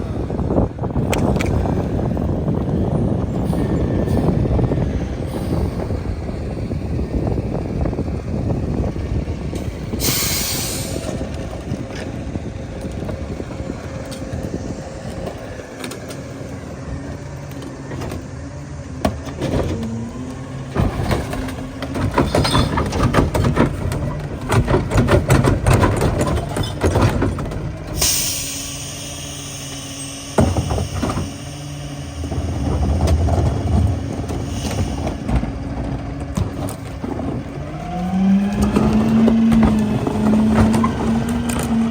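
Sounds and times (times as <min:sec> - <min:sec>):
garbage truck engine and hydraulics: 0:00.0 - 0:41.9
sharp air hiss: 0:10.0 - 0:11.1, 0:28.0 - 0:32.3
trash cracking and snapping: 0:19.1 - 0:27.9.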